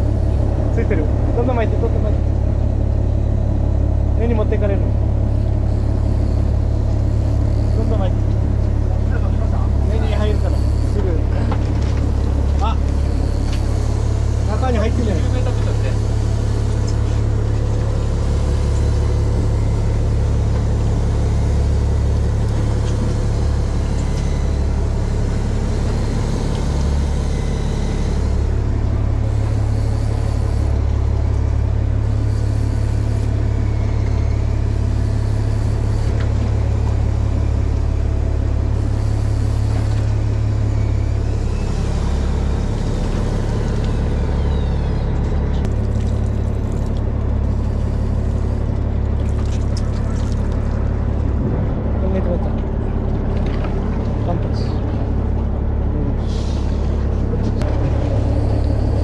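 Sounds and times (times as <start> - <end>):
boat engine rumbling: 0.0 - 59.0.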